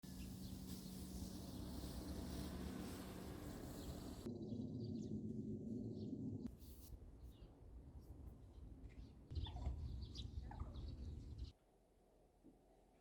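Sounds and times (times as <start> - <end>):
steady hiss: 0.0 - 4.3
low hum: 0.0 - 6.5.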